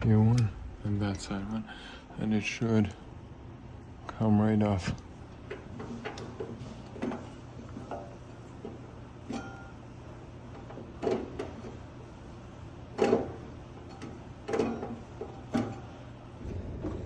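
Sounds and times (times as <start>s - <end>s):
faint low hum: 0.0s - 5.3s.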